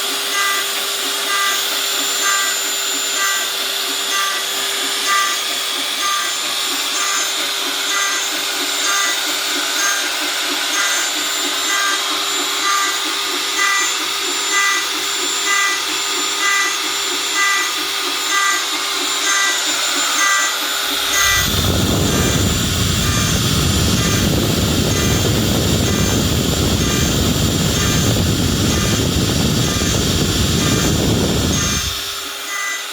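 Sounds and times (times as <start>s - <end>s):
router spindle running: 0.0s - 32.9s
stepper motors whining: 0.0s - 32.9s
loud rushing noise: 21.0s - 32.1s.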